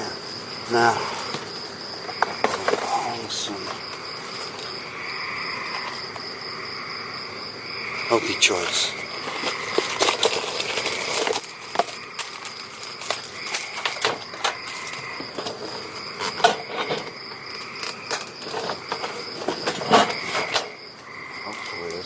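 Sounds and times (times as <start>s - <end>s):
crickets chirping: 0.0s - 22.0s
packaging crinkling: 9.1s - 15.8s.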